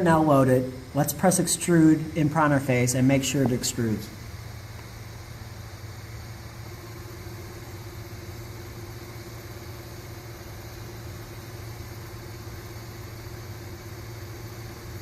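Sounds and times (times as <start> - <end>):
constant low hum: 0.0 - 15.0
stepper motor whine: 0.0 - 15.0.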